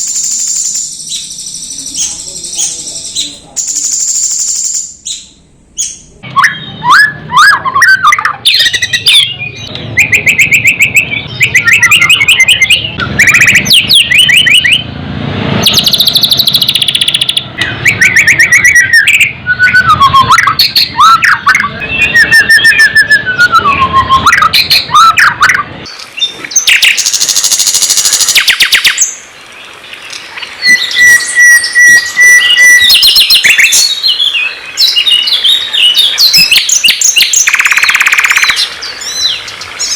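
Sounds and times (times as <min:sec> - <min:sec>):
songbird song: 0:00.0 - 0:15.0, 0:15.6 - 0:39.9.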